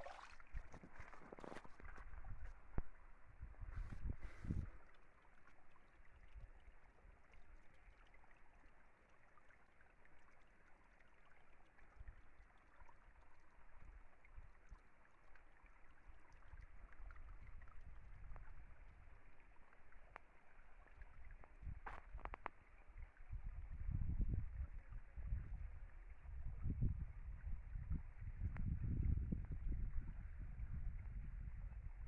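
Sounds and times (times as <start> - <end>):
stream rushing: 0.0 - 0.3.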